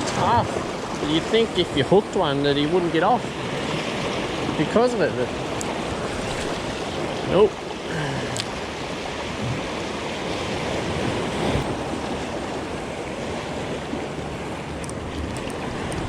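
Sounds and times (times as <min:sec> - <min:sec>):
surf washing over rocks: 0:00.0 - 0:16.0
wind on microphone: 0:08.5 - 0:16.0.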